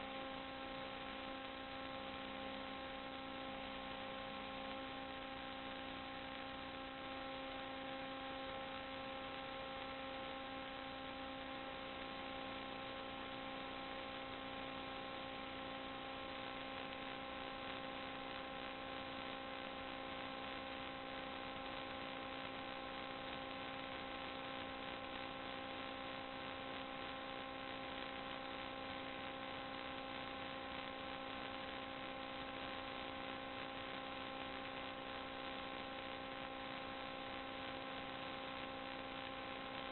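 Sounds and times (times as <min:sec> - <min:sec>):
constant hiss: 0:00.0 - 0:39.9
electrical hum with held tones: 0:00.0 - 0:39.9.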